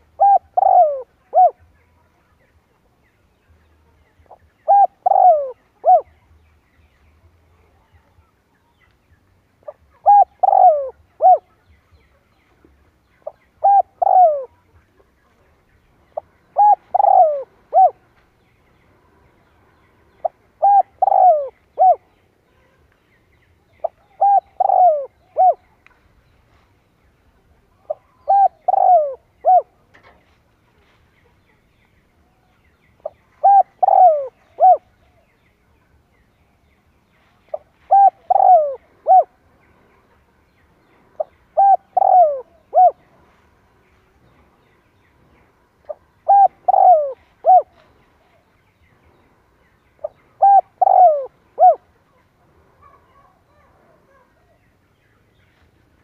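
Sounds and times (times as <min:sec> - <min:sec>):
dove cooing: 0:00.0 - 0:01.7, 0:04.3 - 0:06.2, 0:09.6 - 0:11.6, 0:13.2 - 0:14.6, 0:16.2 - 0:18.1, 0:20.2 - 0:22.1, 0:23.8 - 0:25.6, 0:27.9 - 0:29.8, 0:33.0 - 0:34.9, 0:37.5 - 0:39.4, 0:41.2 - 0:43.0, 0:45.9 - 0:47.8, 0:50.0 - 0:51.9.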